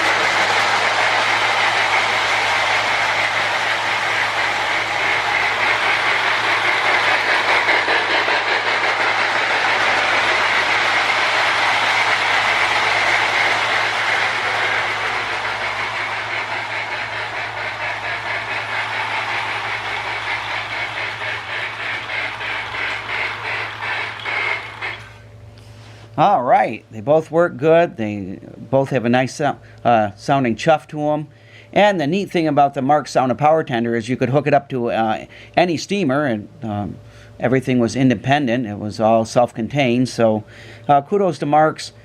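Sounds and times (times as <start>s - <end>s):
electronic toy train chuffing: 0.0s - 26.0s, 39.0s - 42.0s
steady low hum: 0.0s - 34.2s.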